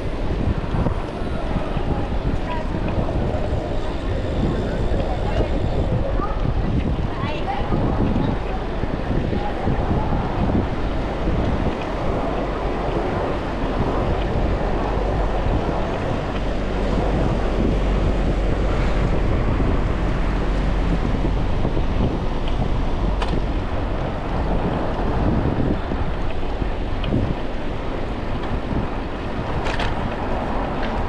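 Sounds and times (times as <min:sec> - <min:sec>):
road traffic: 0:00.0 - 0:31.0
wind rumble on microphone: 0:00.0 - 0:31.0.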